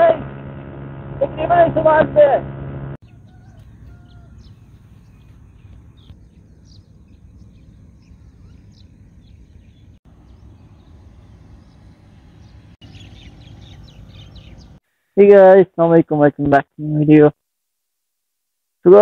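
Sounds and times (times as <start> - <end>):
small birds chirping: 3.0 - 15.2.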